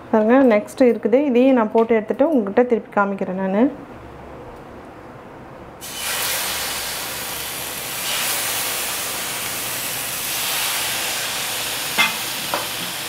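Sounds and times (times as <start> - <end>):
chicken sizzling on a hot griddle: 5.8 - 13.0.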